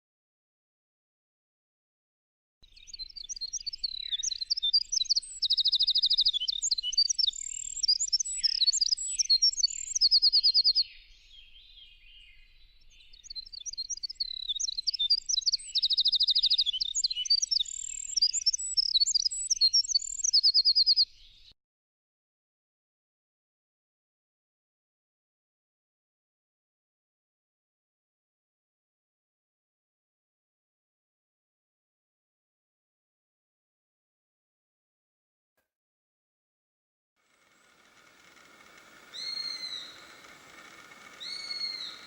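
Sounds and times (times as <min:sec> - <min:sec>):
songbird singing with trills: 0:02.6 - 0:21.5, 0:37.5 - 0:42.0.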